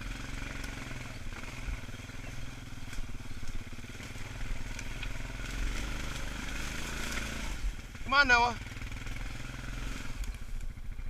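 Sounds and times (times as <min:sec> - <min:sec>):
atv engine running: 0:00.0 - 0:11.0
light clicks and crackles: 0:02.8 - 0:05.2.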